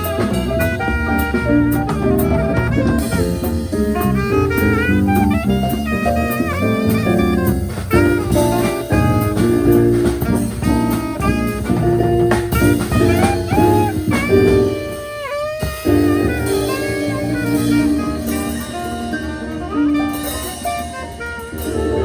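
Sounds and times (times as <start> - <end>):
bass: 0.0 - 22.0
drums: 0.0 - 22.0
saxophone melody: 0.0 - 22.0.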